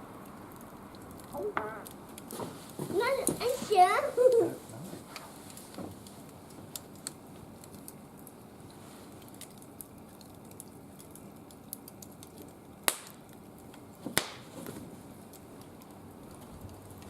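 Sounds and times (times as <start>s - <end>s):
wood fire crackling: 0.0s - 17.0s
loud sharp pops: 12.9s - 13.2s, 14.0s - 14.8s.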